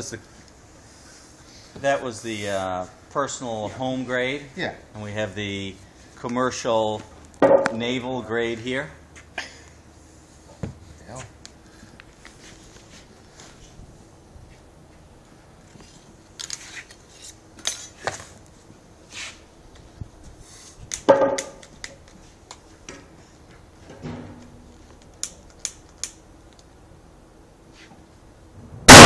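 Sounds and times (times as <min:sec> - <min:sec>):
loud knock: 0:07.4 - 0:07.8, 0:21.1 - 0:21.6.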